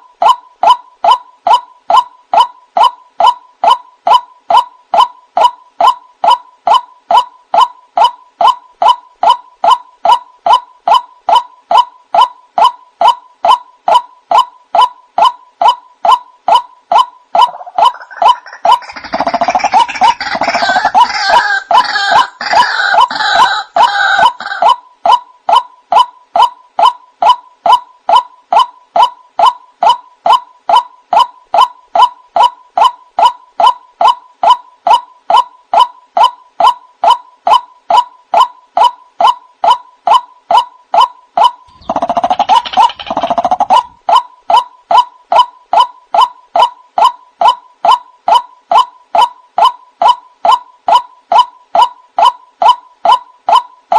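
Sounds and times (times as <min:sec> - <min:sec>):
harsh croaking bird calls: 0:05.4 - 0:35.0, 0:39.6 - 0:47.2.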